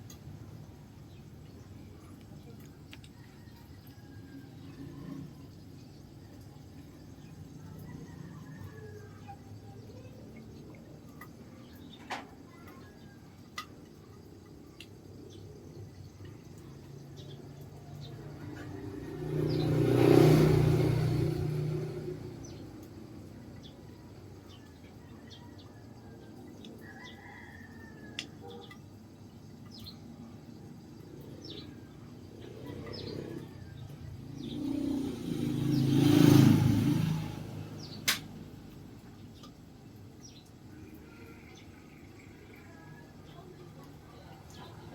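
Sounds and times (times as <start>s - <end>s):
small birds chirping: 0.0s - 44.9s
motor vehicle engine passing: 0.4s - 13.1s, 15.8s - 27.8s, 29.7s - 44.9s
sharp click: 38.0s - 38.3s.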